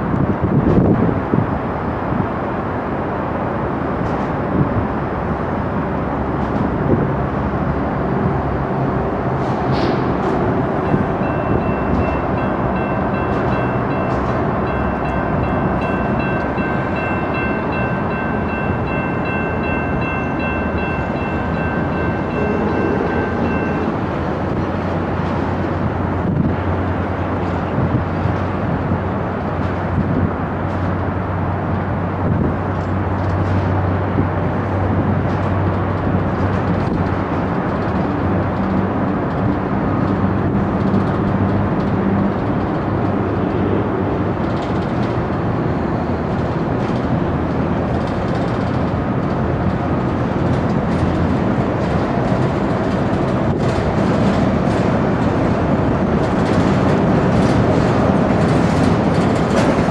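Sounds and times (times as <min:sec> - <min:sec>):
diesel locomotive engine humming: 0:00.0 - 0:59.9.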